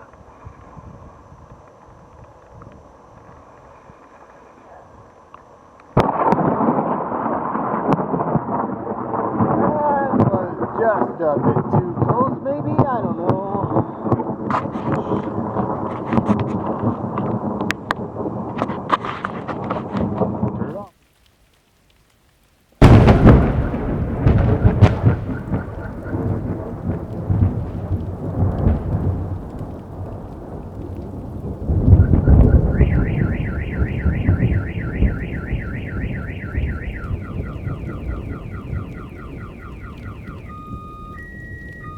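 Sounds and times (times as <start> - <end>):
thunder: 6.0 - 10.4, 22.8 - 41.9
car alarm warbling: 22.8 - 28.0, 31.7 - 41.9.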